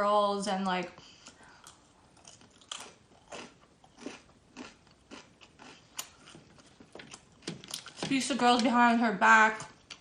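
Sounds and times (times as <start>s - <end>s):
chewing crunchy fried chicken: 1.0s - 8.0s.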